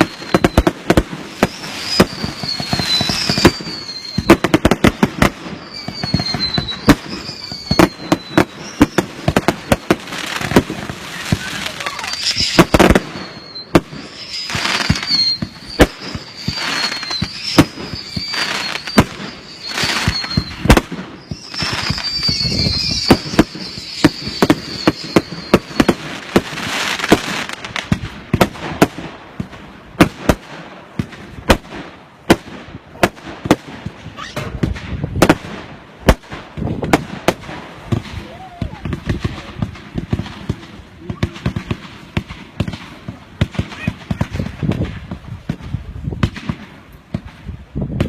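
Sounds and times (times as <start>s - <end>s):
high firework whistle: 0.0s - 27.8s
crackling bursts: 0.0s - 48.0s
firework bangs: 0.0s - 48.0s.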